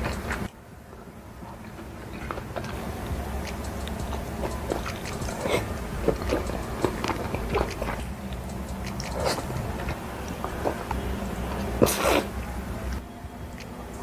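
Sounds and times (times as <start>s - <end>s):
person biting and chewing food: 3.4s - 11.0s.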